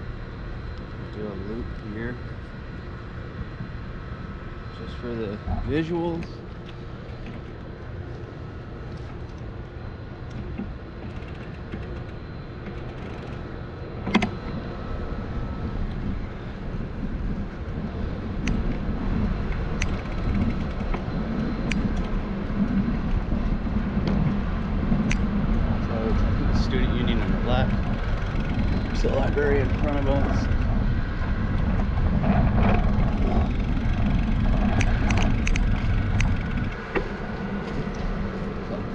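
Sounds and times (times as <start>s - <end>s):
bicycle tyre and road rumble: 0.0s - 38.9s
sharp clicks: 19.5s - 22.8s, 32.6s - 37.0s.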